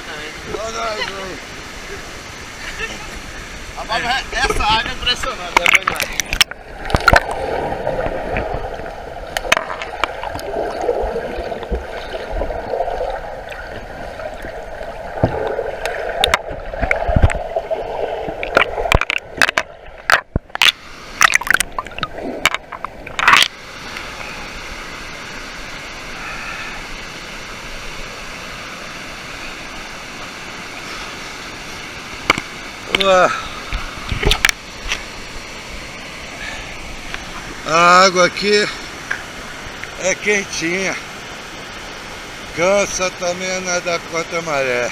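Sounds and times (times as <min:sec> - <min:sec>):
water gurgling and sloshing: 0:00.0 - 0:43.1
rush of flowing water: 0:00.0 - 0:44.9
sharp splashes and knocks: 0:05.5 - 0:08.7, 0:09.3 - 0:17.6, 0:18.2 - 0:23.5.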